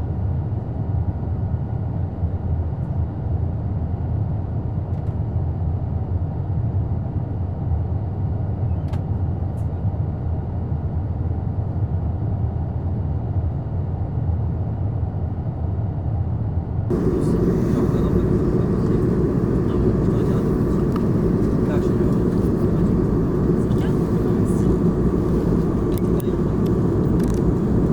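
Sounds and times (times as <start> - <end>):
jet engine cabin drone: 16.8 - 27.9.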